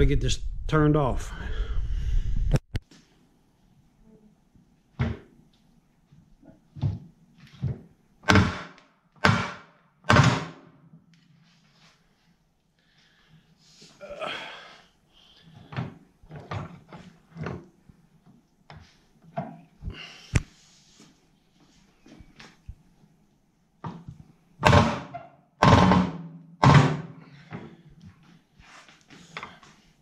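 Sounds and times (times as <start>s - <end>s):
metal clanks and thuds: 23.9s - 27.7s.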